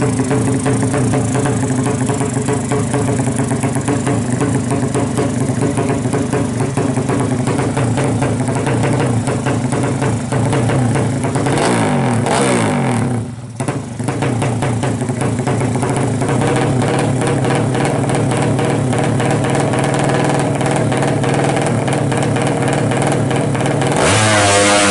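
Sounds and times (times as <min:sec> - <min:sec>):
racing motorcycle engine: 0:00.0 - 0:24.9.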